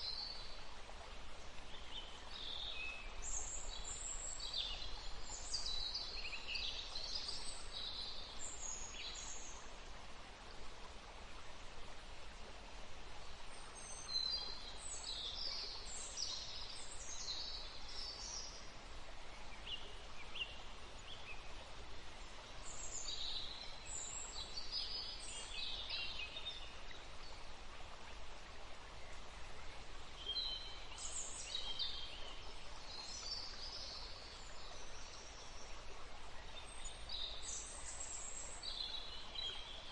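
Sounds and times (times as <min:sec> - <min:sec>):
stream running: 0:00.0 - 0:39.9
songbirds singing: 0:28.8 - 0:39.9.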